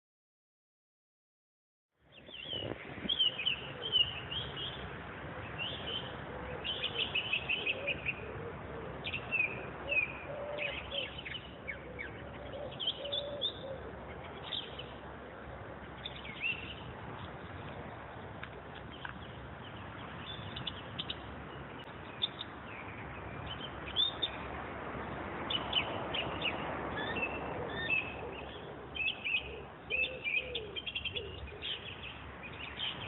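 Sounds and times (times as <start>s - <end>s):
songbirds chirping and trilling: 2.0s - 33.0s
low wavering bird call: 5.6s - 14.0s, 27.0s - 31.9s.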